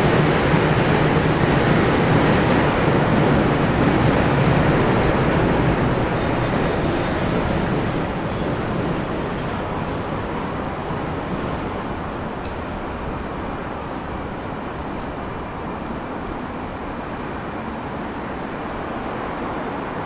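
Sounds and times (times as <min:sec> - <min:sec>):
electric train rumbling on elevated track: 0:00.0 - 0:20.0.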